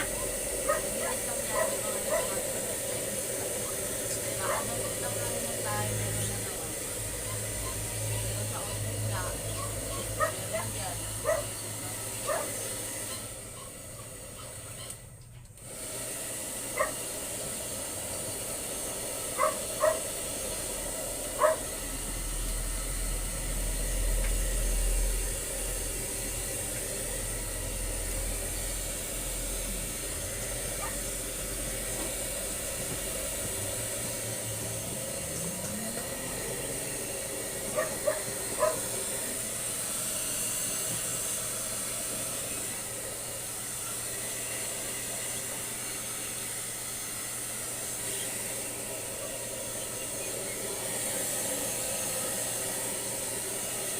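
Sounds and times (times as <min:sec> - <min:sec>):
dog yipping: 0:00.0 - 0:02.4, 0:04.4 - 0:05.0, 0:07.2 - 0:08.8, 0:09.5 - 0:10.5, 0:11.2 - 0:11.5, 0:12.2 - 0:15.1, 0:16.8 - 0:17.0, 0:19.4 - 0:20.0, 0:21.4 - 0:21.7, 0:30.8 - 0:31.0, 0:37.7 - 0:38.8.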